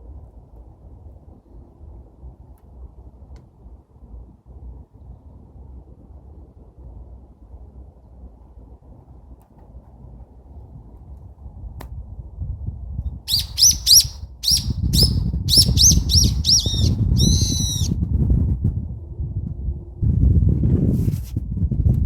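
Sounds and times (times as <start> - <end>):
low rumble: 0.0 - 22.0
bird high chirps: 13.3 - 17.9.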